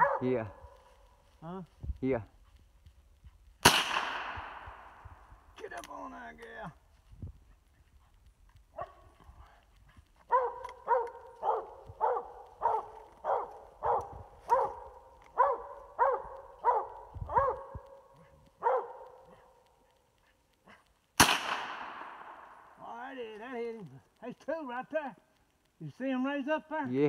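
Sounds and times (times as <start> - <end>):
dog barking: 0.0 - 0.9, 8.7 - 9.3, 10.3 - 19.7
gunshot: 3.6 - 5.0, 21.2 - 22.5.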